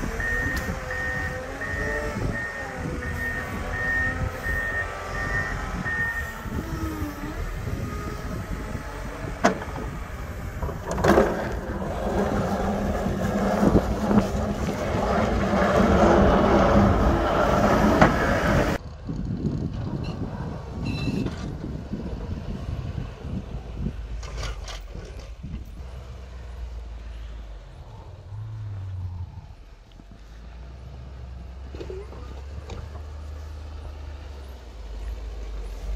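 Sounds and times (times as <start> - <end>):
reversing alarm beeping: 0.0 - 7.0.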